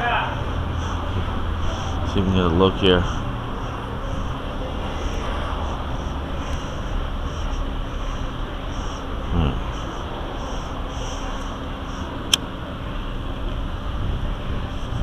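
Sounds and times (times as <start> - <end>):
low distant engine rumble: 0.0 - 15.0.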